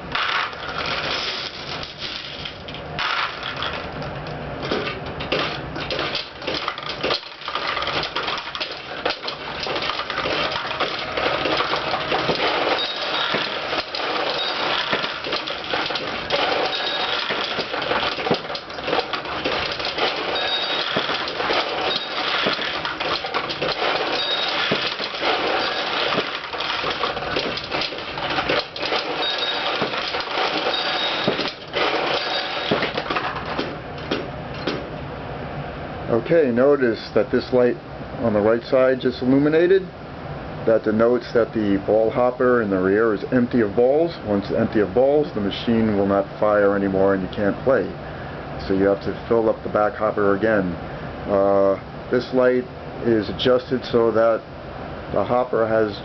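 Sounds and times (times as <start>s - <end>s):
steel balls clattering: 0.0s - 34.7s.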